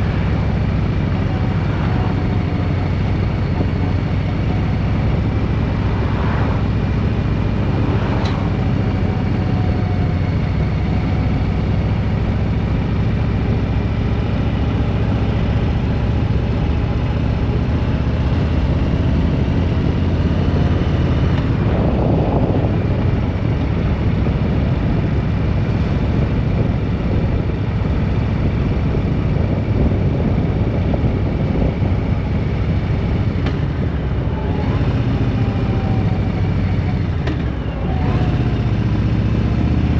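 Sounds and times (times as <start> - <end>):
rushing noise: 0.0 - 10.9
vehicle engine and road noise: 0.0 - 39.9.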